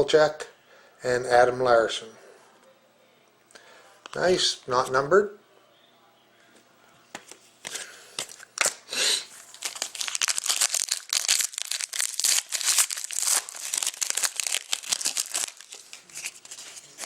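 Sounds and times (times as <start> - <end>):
plastic wrapper crackling: 8.2 - 17.0
plastic wrapper tearing: 8.2 - 17.0.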